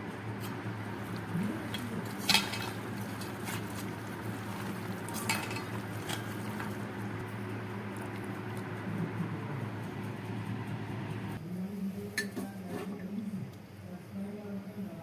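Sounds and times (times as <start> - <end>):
low hum: 5.8 - 11.4.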